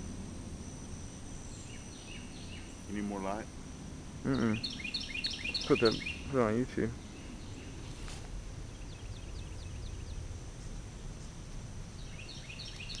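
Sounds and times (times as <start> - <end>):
steady low background noise: 0.0 - 13.0
bird chirping: 1.4 - 3.3, 4.3 - 8.0, 8.7 - 10.3, 12.0 - 13.0.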